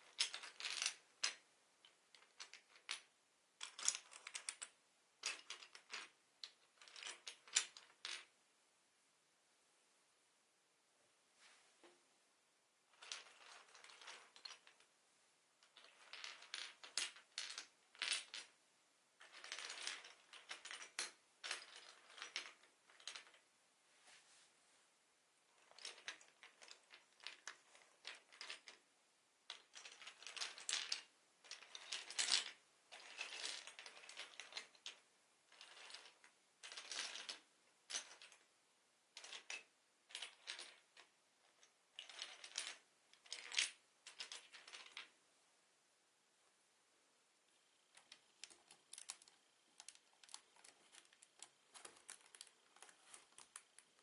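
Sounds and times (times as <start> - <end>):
plastic bricks clicking and clattering: 0.0 - 8.3, 13.0 - 14.9, 15.6 - 18.5, 19.2 - 23.4, 25.6 - 28.8, 29.5 - 38.4, 39.2 - 45.1, 47.9 - 54.0.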